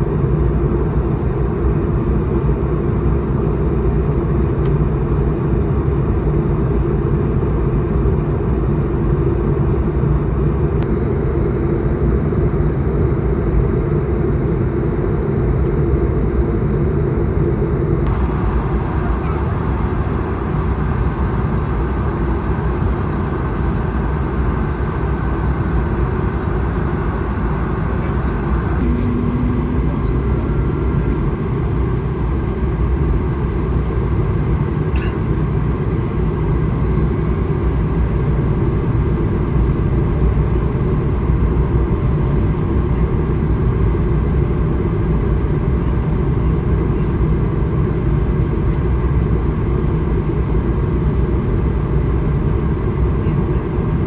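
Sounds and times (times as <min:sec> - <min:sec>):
jet engines droning: 0:00.0 - 0:54.0
airflow rushing over fuselage: 0:28.3 - 0:40.0.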